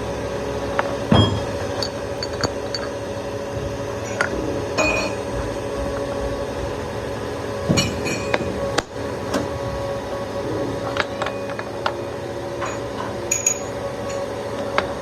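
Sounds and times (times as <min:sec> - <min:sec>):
workshop machinery hum: 0:00.0 - 0:15.0
metal parts clinking: 0:01.2 - 0:03.0, 0:12.6 - 0:14.2.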